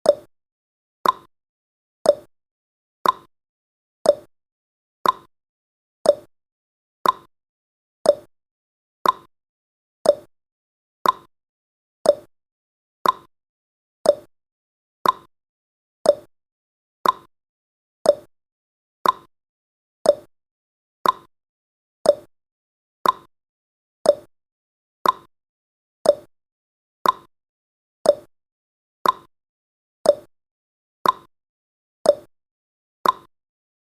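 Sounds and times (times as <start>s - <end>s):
clock ticking: 1.0s - 1.3s, 3.0s - 3.3s, 5.0s - 5.3s, 6.1s - 6.3s, 7.0s - 7.3s, 8.1s - 8.3s, 9.0s - 9.3s, 10.0s - 10.3s, 11.0s - 11.3s, 12.1s - 12.3s, 13.0s - 13.3s, 14.1s - 14.3s, 15.0s - 15.3s, 16.1s - 16.3s, 17.0s - 17.3s, 18.1s - 18.3s, 19.0s - 19.3s, 20.1s - 20.3s, 21.0s - 21.3s, 22.1s - 22.3s, 23.0s - 23.3s, 24.1s - 24.3s, 25.0s - 25.3s, 26.0s - 26.3s, 27.0s - 27.3s, 28.1s - 28.3s, 29.0s - 29.3s, 30.1s - 30.3s, 31.0s - 31.3s, 32.1s - 32.3s, 33.0s - 33.3s.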